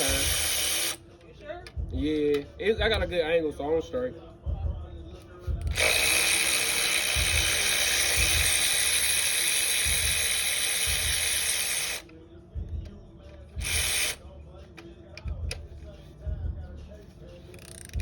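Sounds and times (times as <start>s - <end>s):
power tool running: 0.0s - 1.0s, 5.6s - 12.0s, 13.6s - 14.2s.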